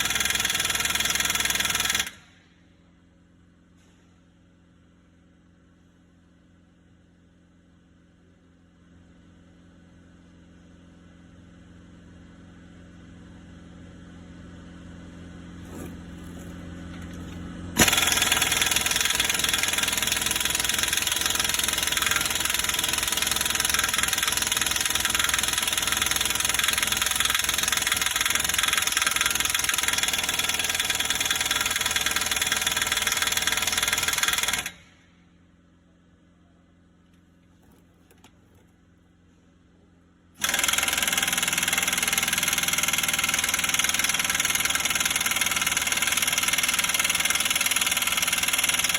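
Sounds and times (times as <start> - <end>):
mechanical hum: 2.2 - 17.8, 34.8 - 40.4.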